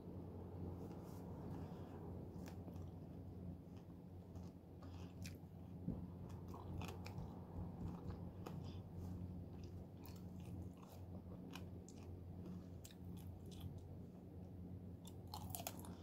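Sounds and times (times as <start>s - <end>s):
steady low hum: 0.0s - 16.0s
person chewing juicy fruit: 1.6s - 14.0s, 15.0s - 16.0s.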